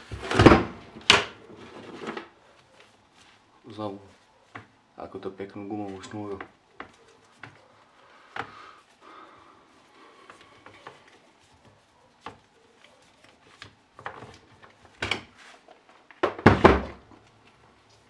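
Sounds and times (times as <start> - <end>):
clatter and thump on workbench: 16.2 - 17.0.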